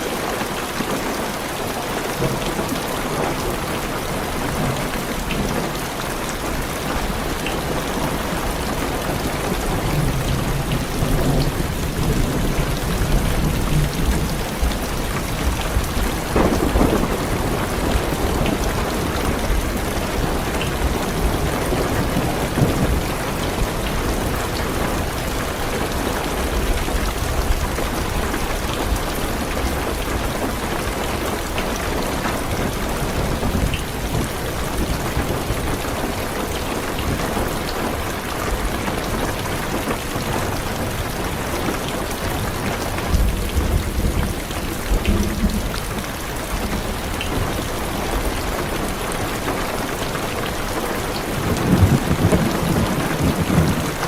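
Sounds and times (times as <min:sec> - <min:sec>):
heavy rain on car roof: 0:00.0 - 0:54.0
thunder rumbling: 0:07.7 - 0:30.5, 0:51.3 - 0:54.0.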